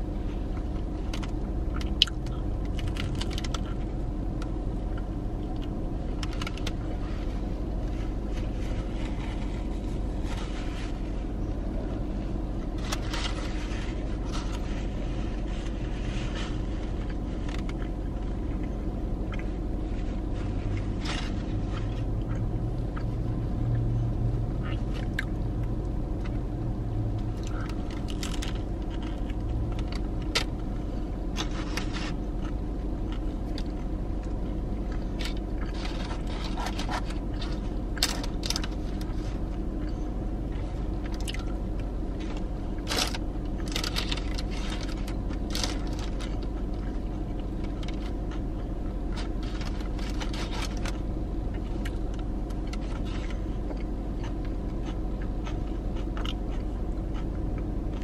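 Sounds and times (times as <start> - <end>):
low car hum: 0.0 - 58.0
chewing and biting sandwich: 0.1 - 58.0
paper wrapper crackling: 35.1 - 39.4, 41.1 - 48.4.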